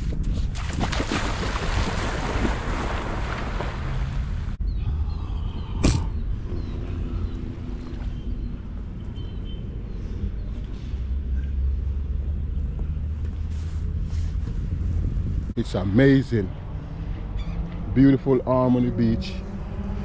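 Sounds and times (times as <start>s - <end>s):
wind and surf rumble: 0.0s - 5.0s.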